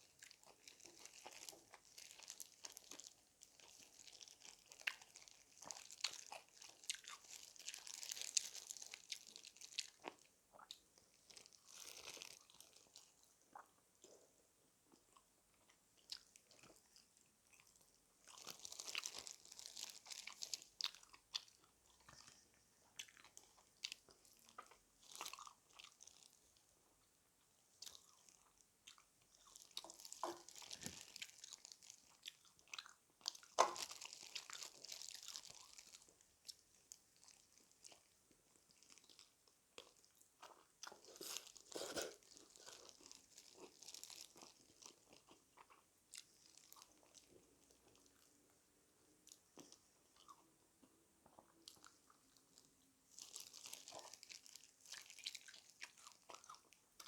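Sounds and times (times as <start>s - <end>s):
crunching fried chicken: 0.0s - 14.2s, 15.0s - 26.7s, 27.8s - 48.4s, 51.3s - 57.0s.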